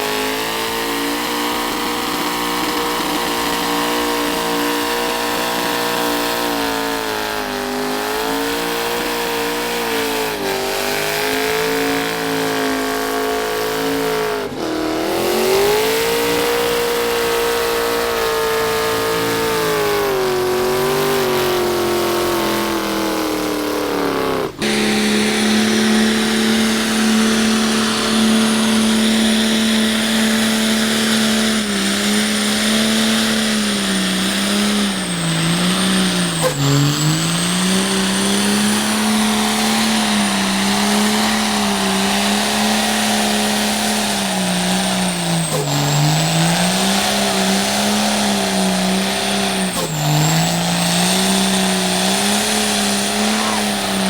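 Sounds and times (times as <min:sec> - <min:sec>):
diesel truck engine revving: 0:00.0 - 0:54.0
thin high whistle: 0:13.3 - 0:54.0.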